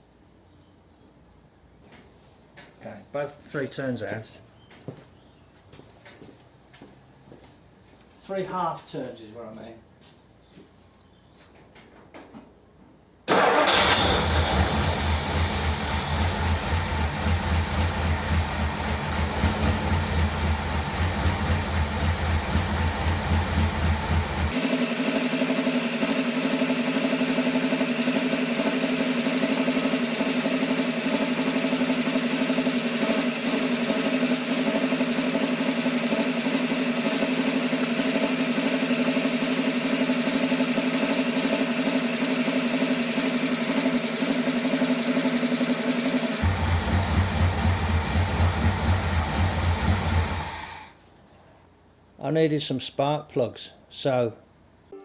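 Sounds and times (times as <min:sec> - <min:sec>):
car engine starting and idling: 0:13.3 - 0:51.0.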